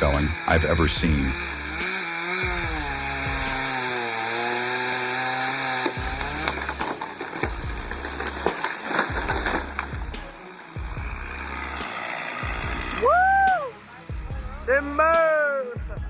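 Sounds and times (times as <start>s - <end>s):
chainsaw cutting: 0.0s - 15.4s
short cracks: 3.4s - 10.8s.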